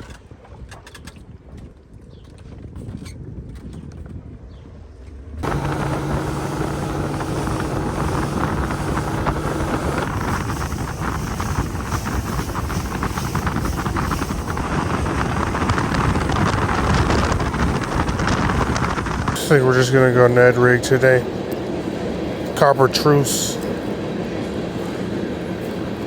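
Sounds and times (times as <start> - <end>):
boat motor running: 5.4 - 26.0
wind rushing over microphone: 5.4 - 26.0.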